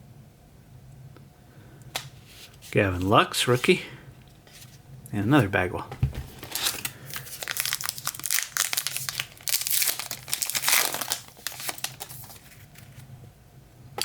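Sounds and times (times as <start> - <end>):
foil wrapper crinkling: 6.3 - 13.0.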